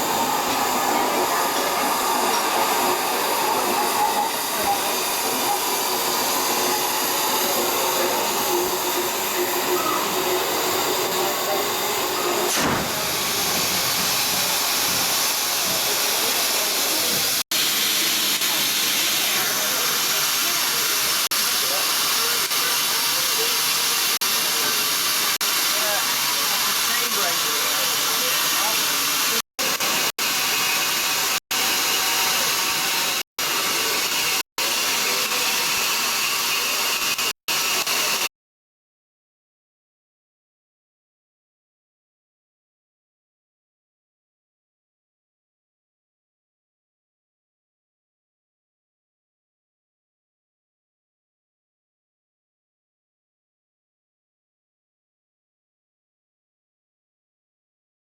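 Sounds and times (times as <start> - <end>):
steam locomotive hissing steam: 0.0 - 38.3.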